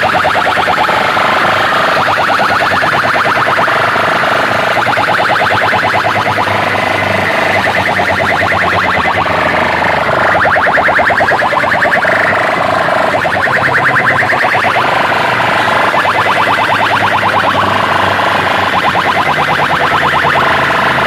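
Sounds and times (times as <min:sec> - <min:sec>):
pulsing electronic tone: 0:00.0 - 0:21.0.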